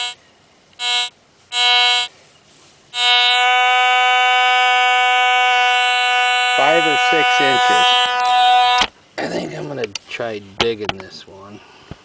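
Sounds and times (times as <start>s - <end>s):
metal detector beep: 0.8s - 2.1s
metal detector buzzy tone: 0.8s - 2.1s, 2.9s - 8.9s.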